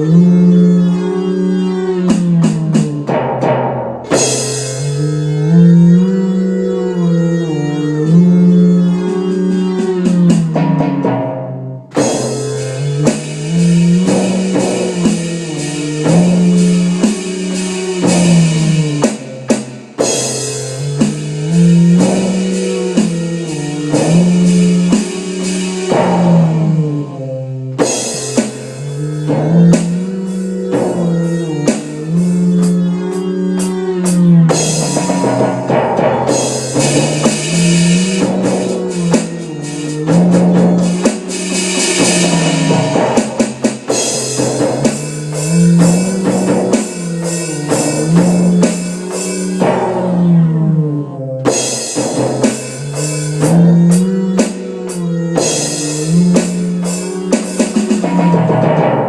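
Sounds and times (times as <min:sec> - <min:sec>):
rock music with drums bass guitar: 0:01.9 - 0:05.8, 0:08.9 - 0:26.8, 0:27.8 - 0:50.3, 0:51.5 - 0:59.0.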